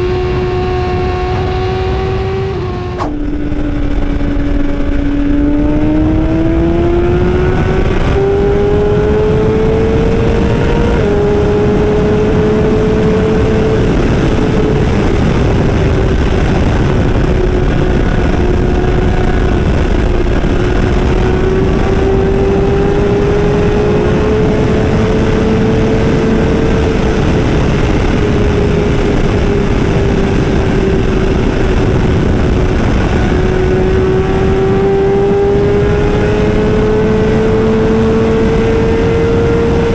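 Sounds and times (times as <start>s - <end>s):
motorcycle engine running hard: 0.0s - 39.9s
low rush of noise: 2.7s - 7.9s.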